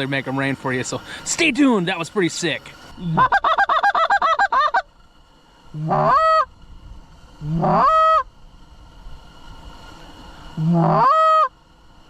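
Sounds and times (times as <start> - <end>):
goose call honks: 5.8 - 6.5, 7.4 - 8.2, 10.6 - 11.5.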